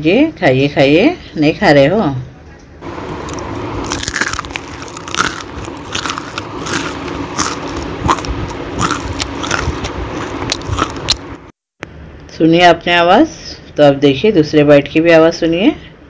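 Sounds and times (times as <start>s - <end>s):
crunchy chewing: 3.0s - 11.5s.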